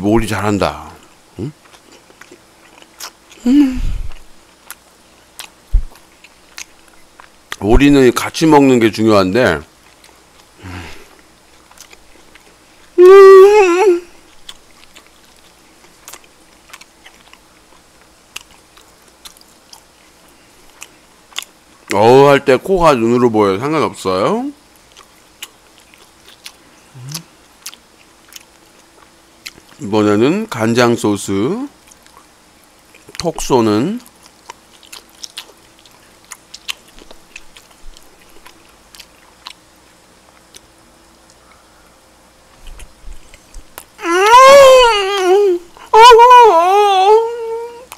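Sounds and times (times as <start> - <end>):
person chewing food: 0.8 - 7.6, 9.6 - 13.0, 14.1 - 22.0, 24.7 - 29.8, 31.8 - 33.3, 34.0 - 44.0.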